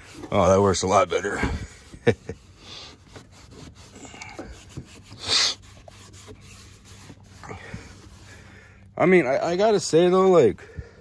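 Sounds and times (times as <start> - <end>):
cloth wiping strokes: 0.0 - 8.7.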